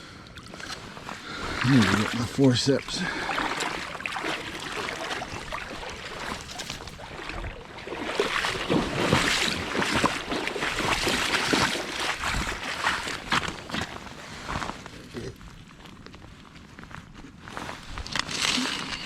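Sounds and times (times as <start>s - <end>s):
water sloshing and splashing: 0.3s - 15.0s.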